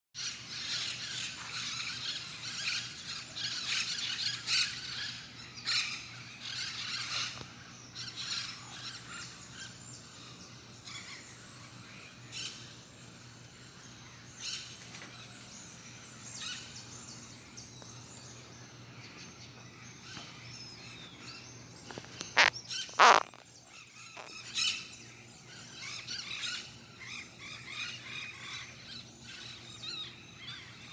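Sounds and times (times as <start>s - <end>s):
parrots calling and chirping: 21.9s - 23.4s, 24.2s - 24.7s
loud harsh parrot calls: 22.2s - 23.4s.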